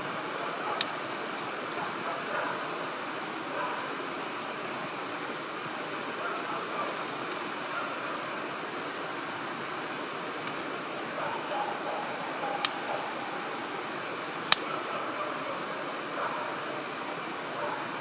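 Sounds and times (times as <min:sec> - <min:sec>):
fire crackling: 0:00.0 - 0:18.0
fire rushing hiss: 0:00.0 - 0:18.0.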